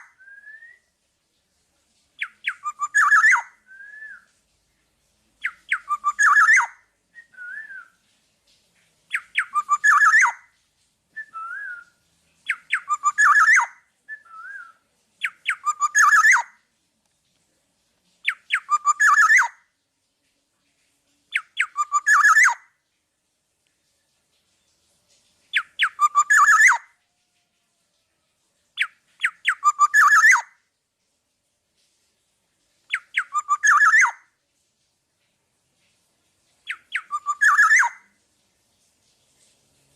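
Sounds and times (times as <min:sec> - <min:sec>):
bird singing whistled phrases: 0:00.0 - 0:00.9, 0:02.2 - 0:04.4, 0:05.4 - 0:08.0, 0:09.1 - 0:10.4, 0:11.2 - 0:16.5, 0:18.2 - 0:19.6, 0:21.3 - 0:22.6, 0:25.5 - 0:26.9, 0:28.8 - 0:30.5, 0:32.9 - 0:34.2, 0:36.7 - 0:38.0
short wavering whistles: 0:00.0 - 0:01.0, 0:02.2 - 0:04.4, 0:05.4 - 0:08.0, 0:11.2 - 0:16.5, 0:21.6 - 0:22.6, 0:25.6 - 0:26.9, 0:29.2 - 0:30.5, 0:32.9 - 0:34.2, 0:36.7 - 0:38.0.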